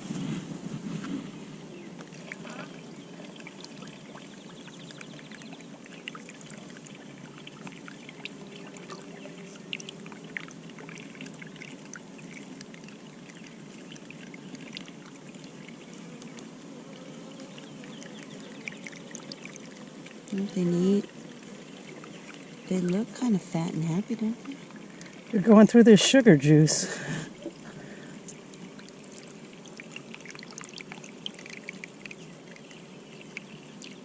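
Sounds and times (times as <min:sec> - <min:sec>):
honeybees humming: 0:00.0 - 0:34.0.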